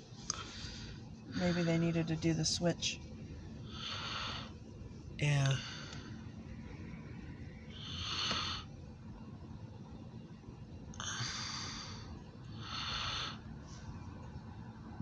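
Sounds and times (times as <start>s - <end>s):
faint low rumble: 0.0s - 15.0s
person breathing close: 0.3s - 2.0s, 3.6s - 4.6s, 7.7s - 8.8s, 11.0s - 14.0s.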